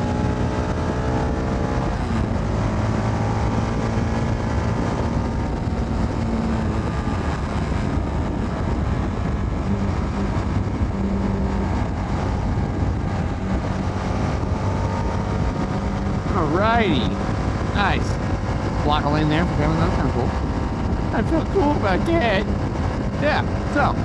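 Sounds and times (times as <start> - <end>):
motorcycle engine running: 0.0 - 18.8
road and wind noise: 0.0 - 24.0.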